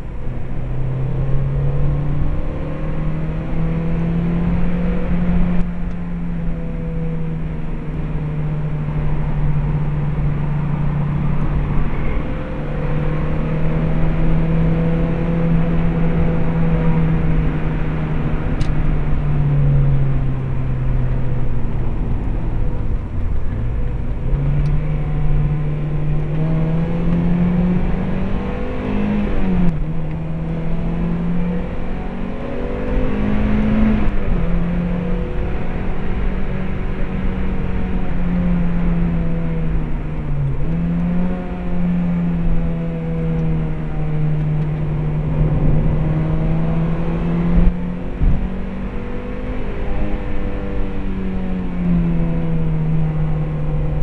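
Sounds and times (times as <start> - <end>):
car engine pulling: 0.0 - 54.0
road and wind noise: 0.0 - 54.0.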